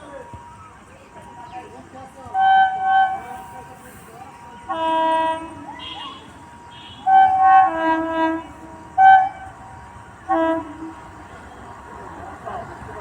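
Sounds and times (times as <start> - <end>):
locomotive horn blasts: 2.4 - 3.3, 4.6 - 9.6, 10.2 - 11.1.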